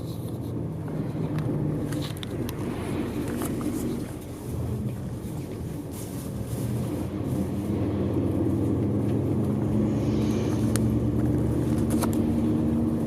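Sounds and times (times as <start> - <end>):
bus engine drone: 0.0 - 13.0.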